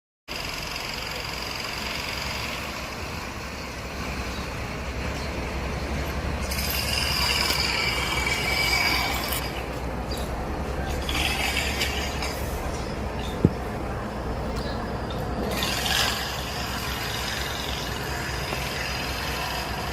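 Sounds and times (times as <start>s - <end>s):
heavy truck rumbling: 0.3s - 19.9s
high squealing: 6.4s - 9.7s.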